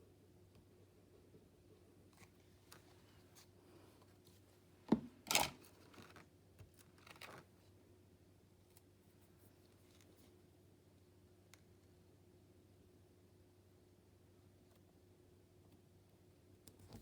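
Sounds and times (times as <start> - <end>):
paper rustling: 5.6 - 7.6.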